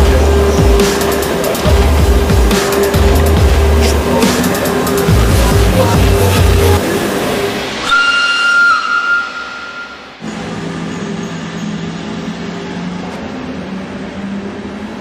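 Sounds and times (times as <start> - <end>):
music with heavy beat: 0.0 - 10.2
train running: 0.0 - 15.0
train horn high tone: 7.8 - 10.3.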